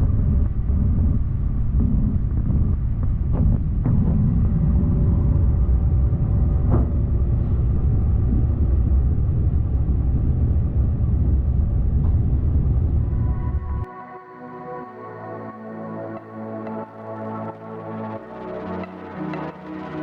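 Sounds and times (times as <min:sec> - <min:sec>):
airplane cabin rumble: 0:00.0 - 0:13.9.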